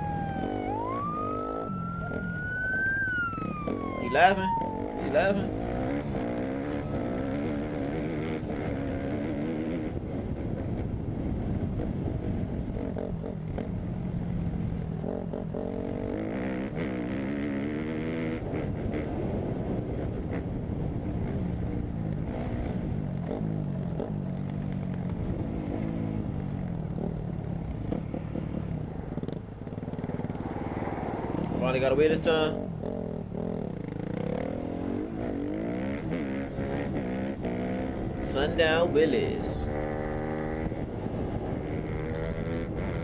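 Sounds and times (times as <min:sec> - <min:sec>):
dirt bike engine revving: 0:00.0 - 0:10.0, 0:15.0 - 0:19.4, 0:30.0 - 0:43.0.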